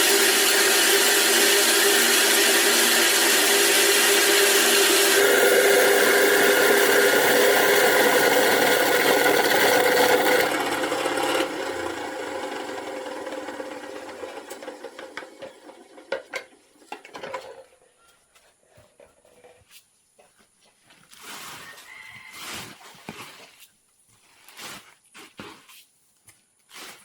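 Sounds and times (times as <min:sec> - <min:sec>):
machine running: 0:00.0 - 0:16.2.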